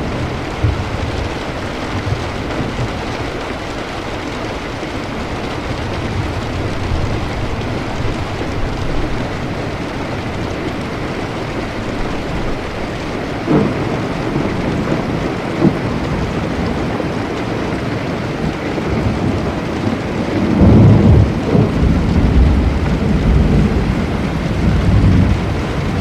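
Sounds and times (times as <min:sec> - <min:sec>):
heavy rain: 0:00.0 - 0:26.0
low rumble of thunder: 0:05.4 - 0:26.0
thunder cracks: 0:13.4 - 0:16.8, 0:18.9 - 0:26.0.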